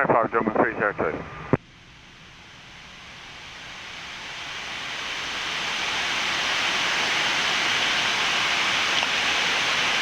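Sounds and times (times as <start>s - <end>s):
rushing hiss of air: 3.3s - 10.0s.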